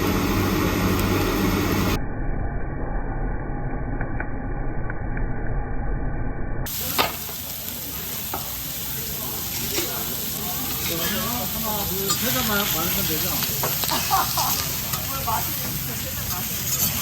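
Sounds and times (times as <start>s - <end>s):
meat sizzling on a griddle: 6.7s - 17.0s.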